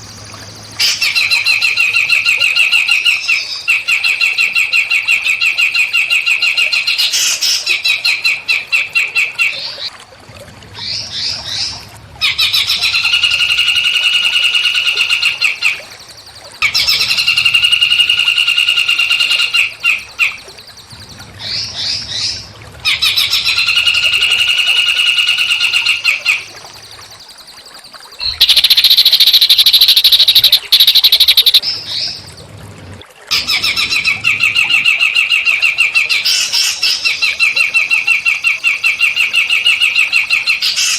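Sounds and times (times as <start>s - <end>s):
songbird trilling: 28.2s - 32.2s.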